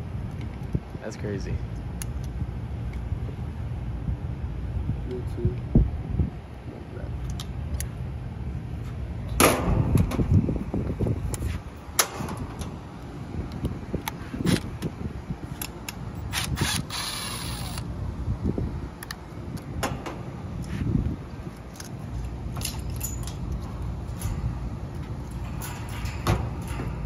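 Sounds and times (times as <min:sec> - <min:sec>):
steady low rumble: 0:00.0 - 0:27.0
sharp clicks and metallic knocks: 0:19.0 - 0:20.3, 0:21.7 - 0:27.0.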